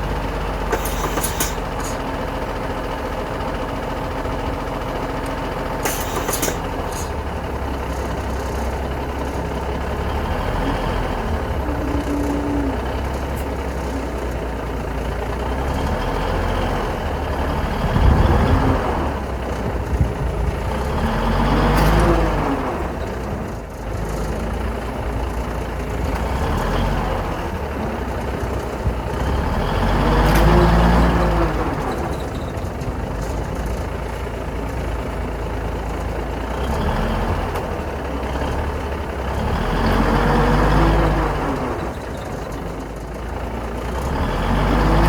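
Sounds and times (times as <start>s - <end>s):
truck diesel engine under load: 0.0s - 45.0s
sharp air hisses: 0.7s - 2.0s, 5.9s - 6.6s.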